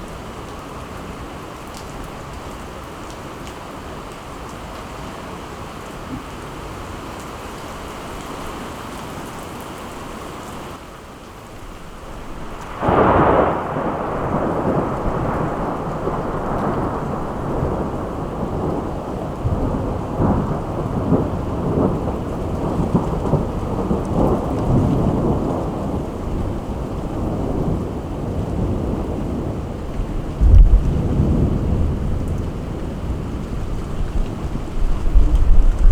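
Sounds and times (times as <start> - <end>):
steady rain falling: 0.0 - 35.9
thunder clap and rolling rumble: 12.6 - 35.9.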